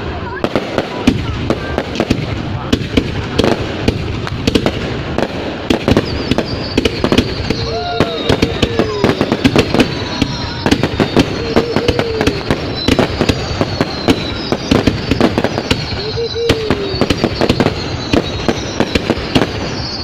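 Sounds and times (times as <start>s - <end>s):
fireworks bangs and crackles: 0.0s - 20.0s
falling whistling tones: 5.8s - 20.0s.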